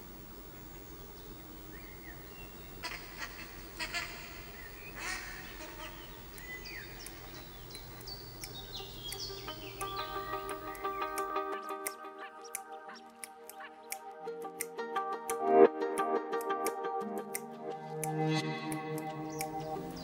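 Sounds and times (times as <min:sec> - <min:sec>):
faint outdoor hush: 0:00.0 - 0:13.7
birds chirping: 0:00.0 - 0:14.2, 0:18.2 - 0:20.0.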